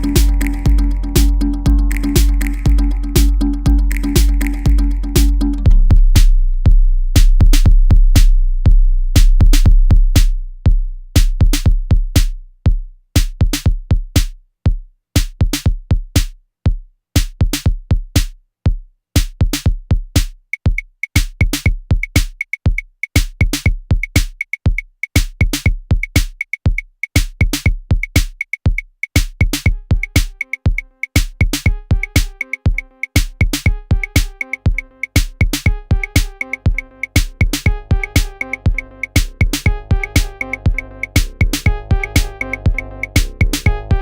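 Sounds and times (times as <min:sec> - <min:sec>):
electronic drum pattern: 0:00.0 - 0:08.4, 0:09.2 - 0:10.3, 0:11.2 - 0:12.4, 0:13.2 - 0:14.3, 0:19.2 - 0:44.0
deep bass note: 0:00.0 - 0:12.1, 0:37.7 - 0:44.0.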